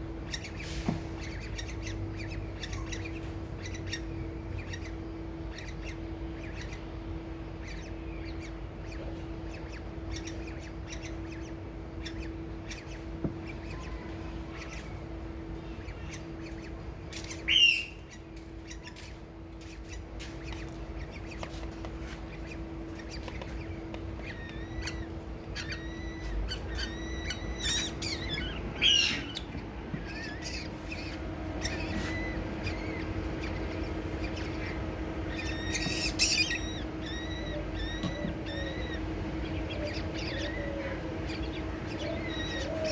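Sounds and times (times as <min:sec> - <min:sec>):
birds chirping: 0:00.0 - 0:42.9
low hum: 0:00.0 - 0:42.9
bird squawks: 0:07.6 - 0:19.1, 0:22.3 - 0:42.9.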